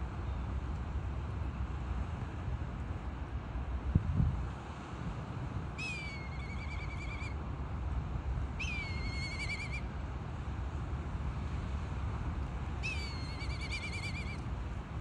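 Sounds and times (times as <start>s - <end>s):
bird whistling call: 5.8s - 7.4s, 8.6s - 9.8s, 12.8s - 14.4s.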